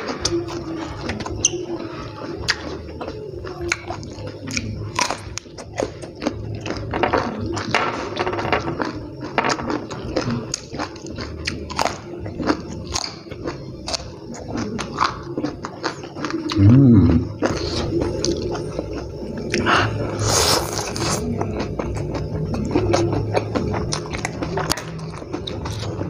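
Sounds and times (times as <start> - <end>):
chewing with lip smacks: 0.0 - 7.7, 8.8 - 16.6
crunching raw vegetables: 8.8 - 26.0.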